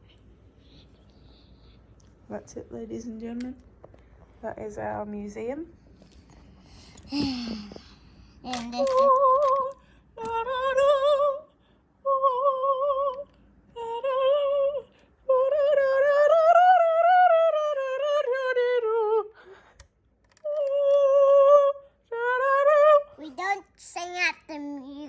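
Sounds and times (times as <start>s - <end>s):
singer breathing: 6.5s - 8.4s.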